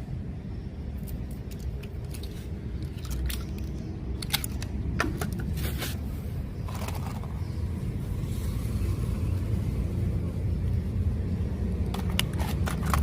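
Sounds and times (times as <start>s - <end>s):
clicks of hard objects handled: 11.9s - 13.0s.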